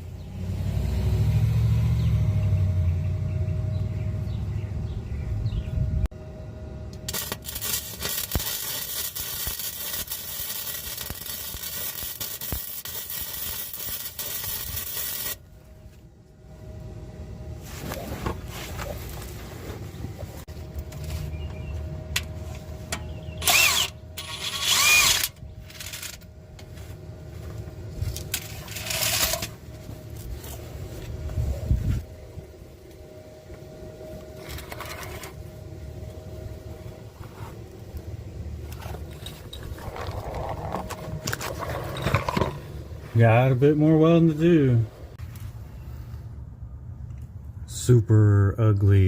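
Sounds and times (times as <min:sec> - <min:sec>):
welder crackling buzz: 0:06.8 - 0:15.6, 0:22.9 - 0:26.3, 0:28.0 - 0:30.4
tack welding bursts: 0:07.0 - 0:15.5, 0:23.4 - 0:26.2.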